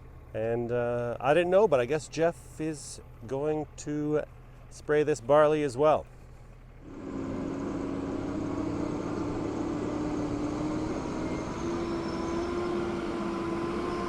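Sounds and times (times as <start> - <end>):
motor humming: 6.8 - 14.0.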